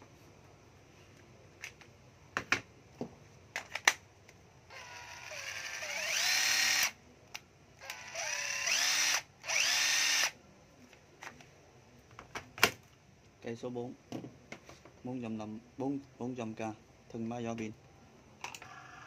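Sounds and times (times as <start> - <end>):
cordless drill motor whining: 4.7 - 7.0, 7.8 - 10.4.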